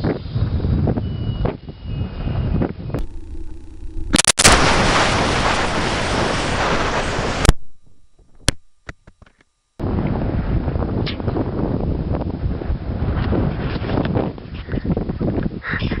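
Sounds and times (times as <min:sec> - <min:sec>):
wind rumble on microphone: 0:00.0 - 0:07.5, 0:09.8 - 0:16.0
loud rushing air: 0:03.0 - 0:07.8
launcher firing bang: 0:03.0 - 0:08.0.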